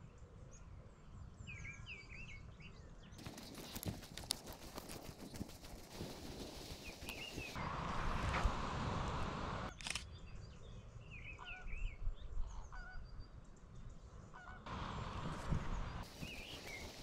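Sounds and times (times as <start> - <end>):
camera shutter click: 9.7 - 10.1
walking noise: 15.3 - 17.0.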